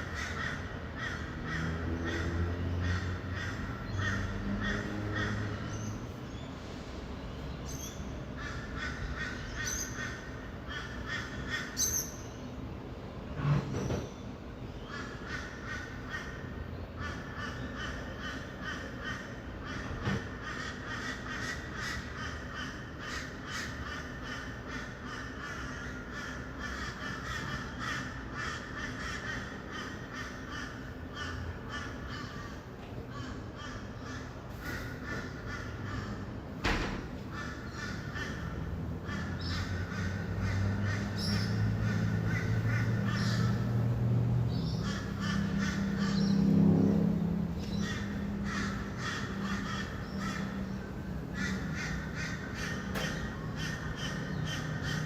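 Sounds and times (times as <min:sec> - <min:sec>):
lorikeets chattering and screeching: 0:00.0 - 0:06.7, 0:07.3 - 0:12.7, 0:37.3 - 0:43.8, 0:44.4 - 0:46.5, 0:47.5 - 0:55.0
traffic rumble: 0:00.0 - 0:55.0.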